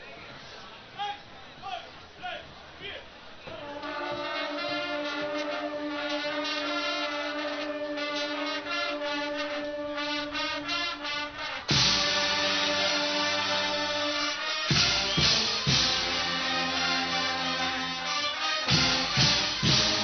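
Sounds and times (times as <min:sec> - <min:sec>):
drums: 0:03.4 - 0:20.0
brass band playing: 0:03.5 - 0:20.0.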